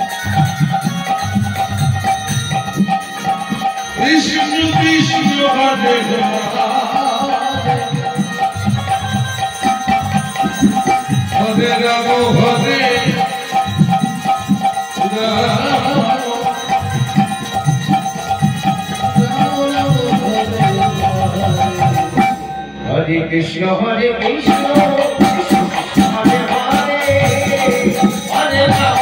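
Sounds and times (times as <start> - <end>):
hand drum rhythm: 0.0 - 22.4, 24.4 - 29.0
devotional chanting: 0.0 - 29.0.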